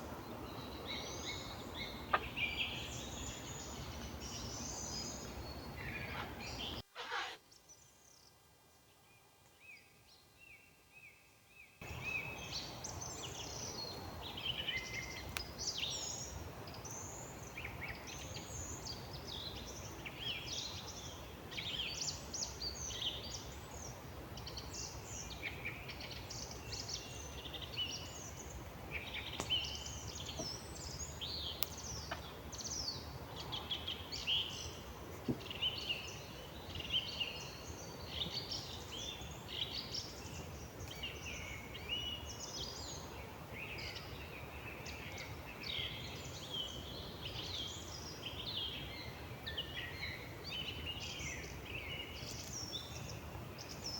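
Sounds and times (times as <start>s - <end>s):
songbirds chirping and warbling: 0.0s - 53.9s
low hiss: 11.8s - 53.9s.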